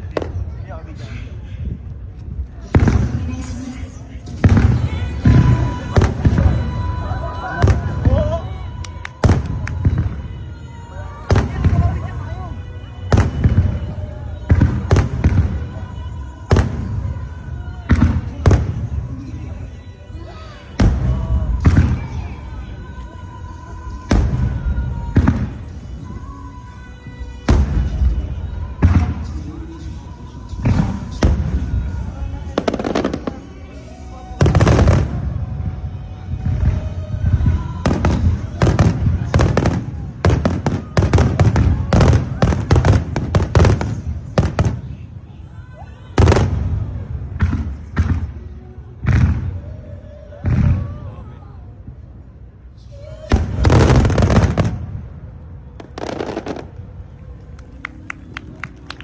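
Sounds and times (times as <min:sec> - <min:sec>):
fireworks bursting with echo: 0:02.5 - 0:19.9, 0:20.5 - 0:45.3, 0:46.1 - 0:51.1, 0:53.0 - 0:59.0
fireworks popping: 0:07.6 - 0:10.3, 0:55.8 - 0:59.0.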